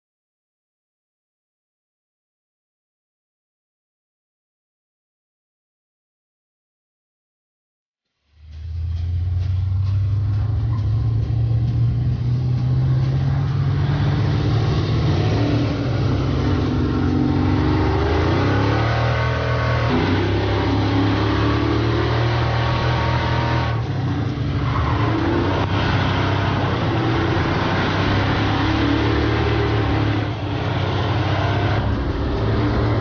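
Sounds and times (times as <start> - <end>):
vehicle engine accelerating: 8.3 - 33.0.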